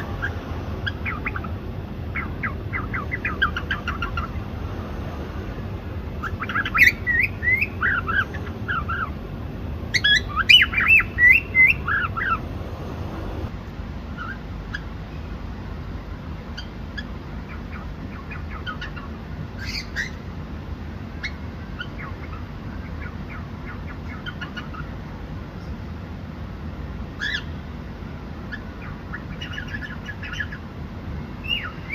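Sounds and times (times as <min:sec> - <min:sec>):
cockatiel chirping: 0:00.0 - 0:04.5, 0:06.2 - 0:09.2, 0:09.9 - 0:12.4, 0:14.2 - 0:14.9, 0:16.6 - 0:20.2, 0:21.2 - 0:24.9, 0:27.2 - 0:27.5, 0:28.5 - 0:30.6, 0:31.4 - 0:31.9
low background noise: 0:00.0 - 0:31.9.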